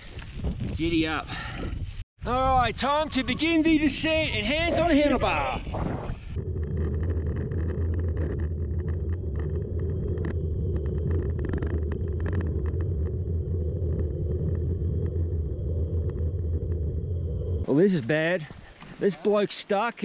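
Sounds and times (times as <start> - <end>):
bike tyres rumbling on gravel: 6.2 - 19.0
grit and stones ticking: 6.3 - 19.0.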